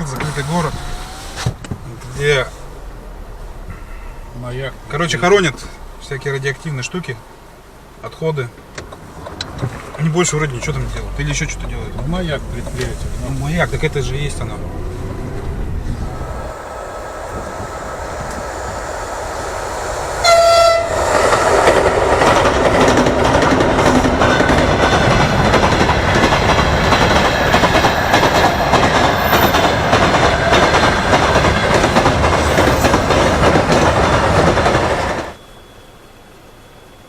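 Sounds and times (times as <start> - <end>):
train wagons rumbling and clattering: 0.0 - 35.6
train horn blast: 20.0 - 21.7.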